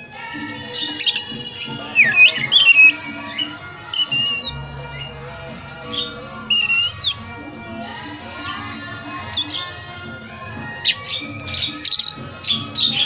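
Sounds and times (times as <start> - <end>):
bird whistled song: 0.0 - 5.1, 5.9 - 7.2, 9.3 - 9.8, 10.7 - 13.0
background music: 0.0 - 13.0.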